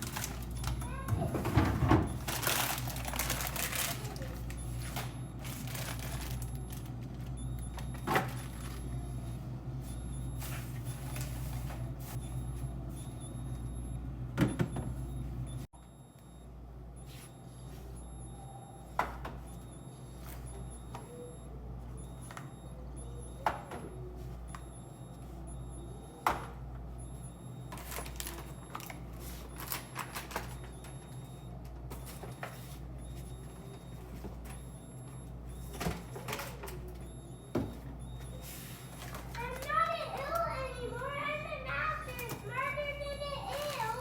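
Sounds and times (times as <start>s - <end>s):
steady low hum: 0.0s - 44.0s
containers knocking on fridge shelves: 0.6s - 2.5s.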